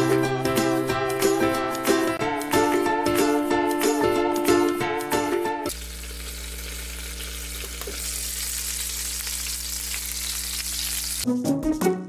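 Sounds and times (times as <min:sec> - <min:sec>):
tofu sizzling in hot oil: 0:05.7 - 0:11.2.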